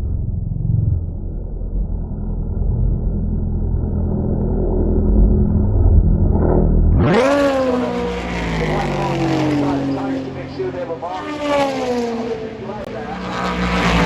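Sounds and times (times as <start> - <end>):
dull low engine rumble: 0.0 - 14.0
race car passing by: 4.8 - 14.0.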